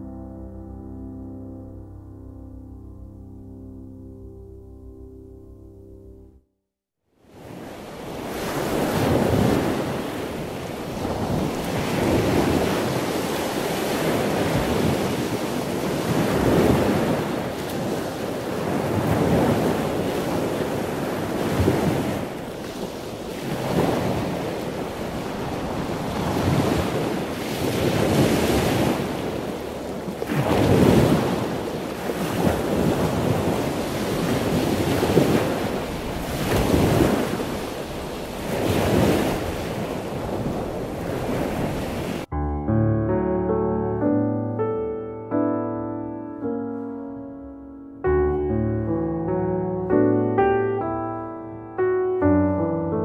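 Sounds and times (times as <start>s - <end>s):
waves breaking: 7.2s - 42.3s.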